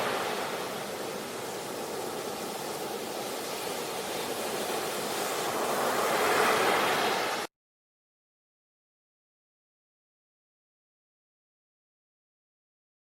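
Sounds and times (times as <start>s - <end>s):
waves breaking: 0.0s - 7.5s.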